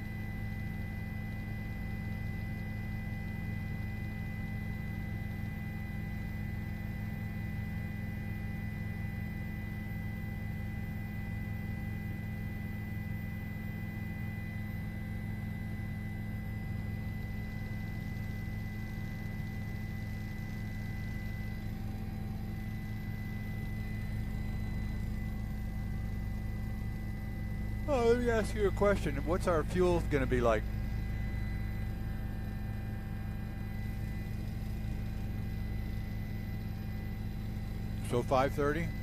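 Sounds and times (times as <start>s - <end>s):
helicopter drone through intercom: 16.2s - 39.0s.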